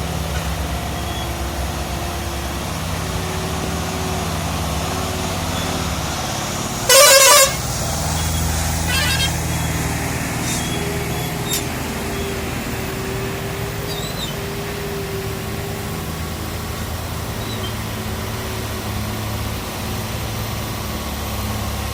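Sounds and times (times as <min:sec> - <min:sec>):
truck diesel engine running: 0:00.0 - 0:21.9
truck horn blasts: 0:06.7 - 0:12.3.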